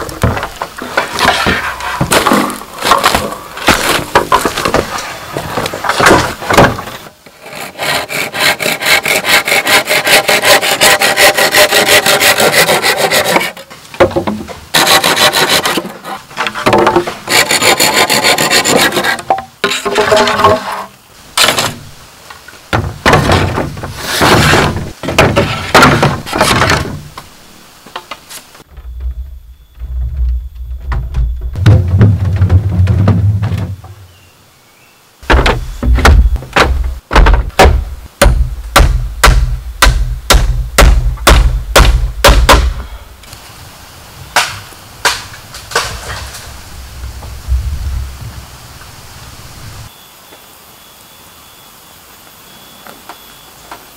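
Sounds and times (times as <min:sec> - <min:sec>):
hand saw cutting bamboo: 0:07.3 - 0:13.7, 0:14.7 - 0:21.8
tool striking bamboo: 0:22.7 - 0:27.0, 0:35.2 - 0:43.0, 0:44.4 - 0:46.2
steady low rumble: 0:46.6 - 0:49.1.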